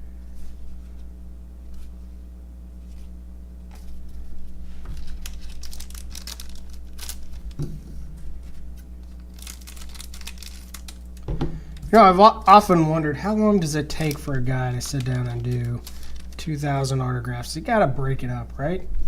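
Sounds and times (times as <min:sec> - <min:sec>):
low electrical hum: 0:00.0 - 0:19.0
cards flipping and rustling: 0:02.8 - 0:03.1, 0:03.7 - 0:07.7, 0:08.4 - 0:11.9, 0:13.7 - 0:16.6.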